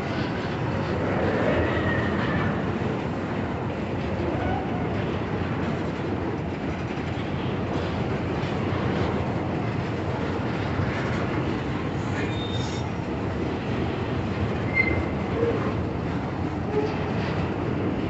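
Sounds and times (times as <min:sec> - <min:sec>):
train rolling on rails: 0:00.0 - 0:18.0
faint wheel squeals: 0:12.1 - 0:12.9, 0:14.7 - 0:15.6.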